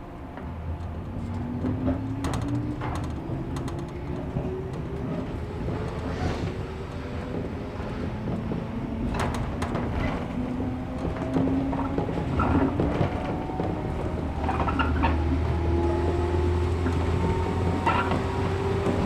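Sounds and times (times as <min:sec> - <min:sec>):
train interior rumble: 0:00.0 - 0:19.0
running gear clicks and knocks: 0:00.8 - 0:06.1.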